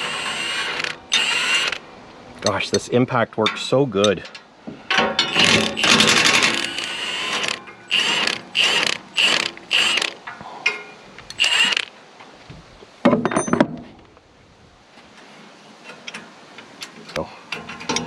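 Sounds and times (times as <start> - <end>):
impact wrench bursts: 0.0 - 1.8, 5.3 - 10.2, 11.3 - 11.9.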